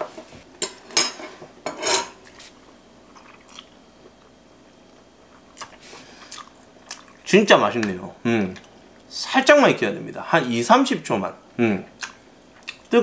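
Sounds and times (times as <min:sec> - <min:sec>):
person chewing food: 0:02.2 - 0:04.4, 0:05.2 - 0:07.2, 0:12.0 - 0:12.9.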